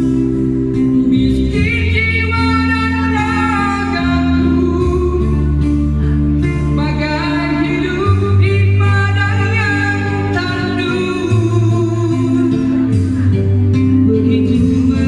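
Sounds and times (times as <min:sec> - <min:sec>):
low bass notes: 0:00.0 - 0:15.0
person singing: 0:00.0 - 0:15.0.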